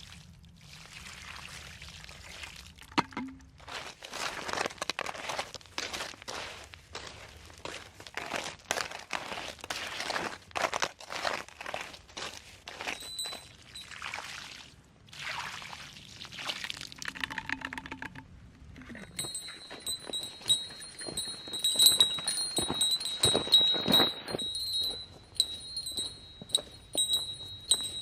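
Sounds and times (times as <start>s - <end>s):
light metallic chiming: 12.9s - 14.0s, 19.0s - 28.0s
rustling: 19.0s - 28.0s.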